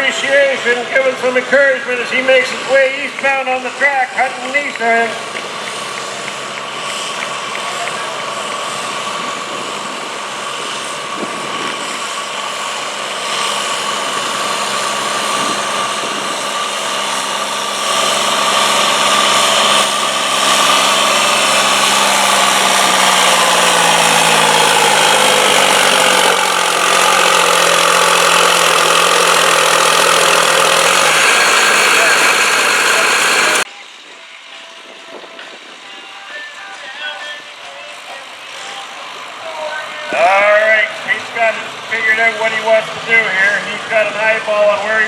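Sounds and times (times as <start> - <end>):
tractor engine running hard: 0.0 - 36.0, 36.8 - 45.0.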